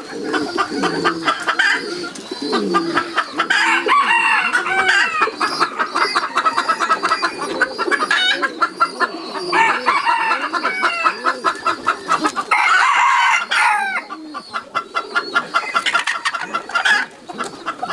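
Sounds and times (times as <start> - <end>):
chickens clucking: 0.0 - 17.9
rooster crowing: 3.4 - 5.3, 9.5 - 11.4, 12.5 - 14.1.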